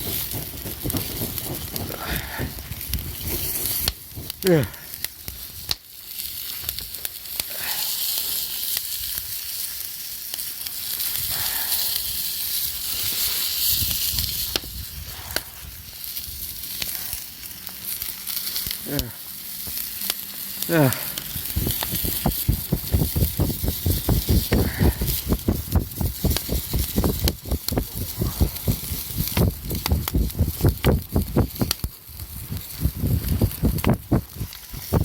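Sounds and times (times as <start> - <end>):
wood fire crackling: 0.0 - 35.0
food sizzling in a pan: 3.7 - 28.5
fast regular knocks or scrapes: 21.4 - 35.0.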